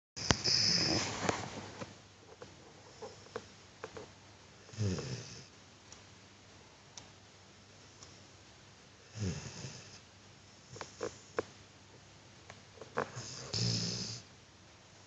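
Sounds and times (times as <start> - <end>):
dog snoring: 0.2 - 1.4, 4.6 - 5.5, 9.0 - 10.0, 12.9 - 14.3.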